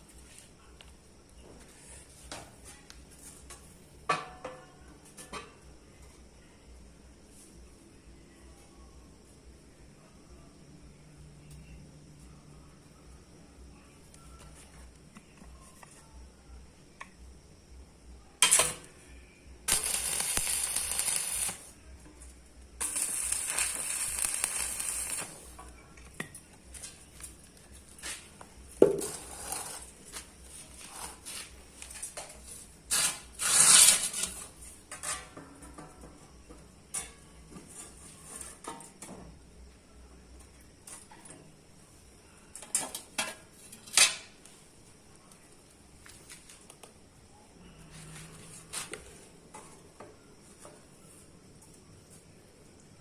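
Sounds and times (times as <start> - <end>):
hissing bursts: 19.7 - 21.7, 22.8 - 25.5.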